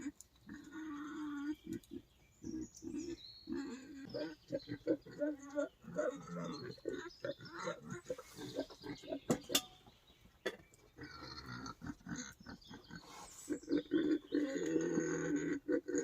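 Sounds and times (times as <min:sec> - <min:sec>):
wild boar grunting: 0:00.0 - 0:09.3, 0:11.0 - 0:16.0.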